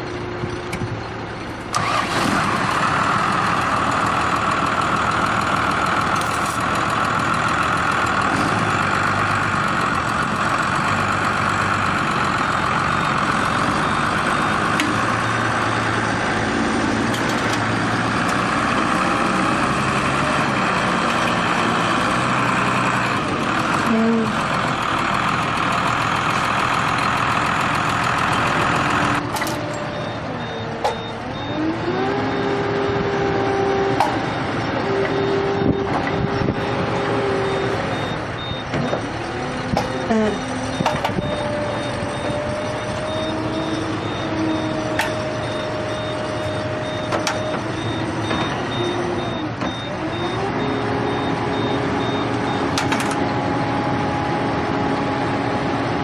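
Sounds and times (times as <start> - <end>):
diesel engine revving: 0.0 - 56.0
reversing alarm beeping: 28.4 - 53.2.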